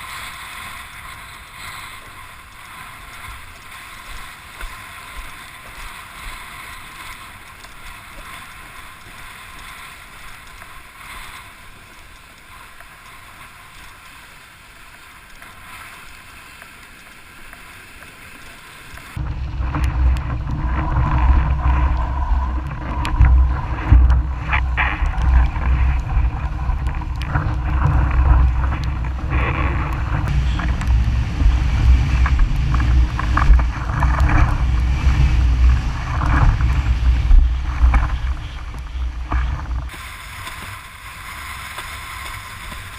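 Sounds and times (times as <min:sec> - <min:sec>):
steady hiss: 0:00.0 - 0:42.9
water rushing and splashing: 0:00.0 - 0:42.9
wind buffeting microphone: 0:19.1 - 0:42.9.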